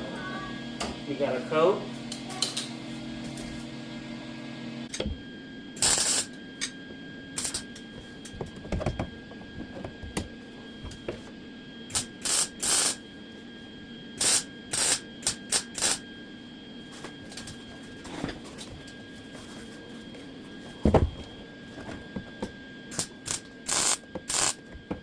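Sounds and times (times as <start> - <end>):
welder crackling bursts: 5.8 - 6.3, 11.9 - 13.0, 14.2 - 16.0, 22.9 - 24.6.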